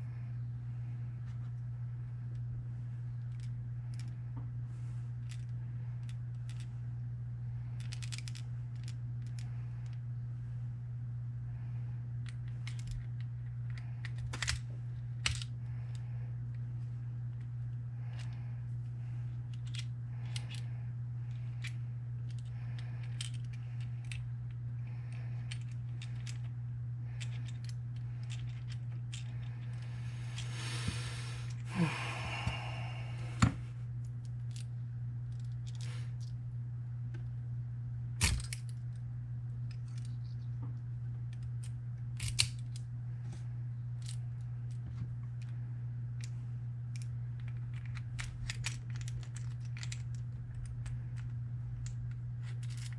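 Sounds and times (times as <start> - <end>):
steady low hum: 0.0 - 52.9
padlock parts clicking: 7.8 - 9.4, 12.2 - 15.6, 19.4 - 20.7, 27.2 - 30.5, 38.2 - 38.9, 41.3 - 42.8, 46.9 - 52.9.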